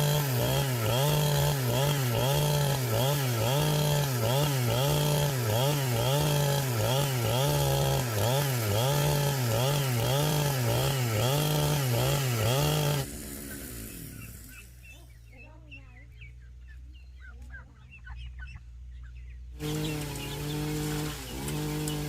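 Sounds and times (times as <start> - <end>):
chainsaw cutting wood: 0.0 - 14.7, 19.6 - 22.0.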